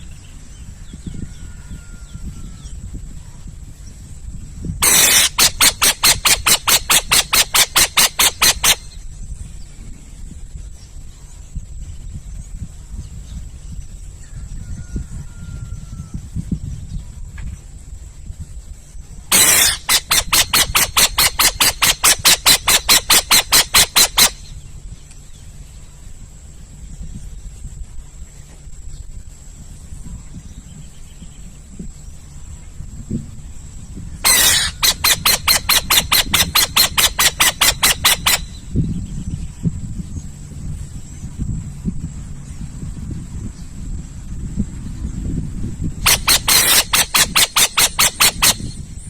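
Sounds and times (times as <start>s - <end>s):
owl hissing screech: 4.8s - 8.9s, 19.3s - 24.4s, 34.2s - 38.6s, 46.1s - 48.8s
owl raspy hisses: 19.3s - 24.3s.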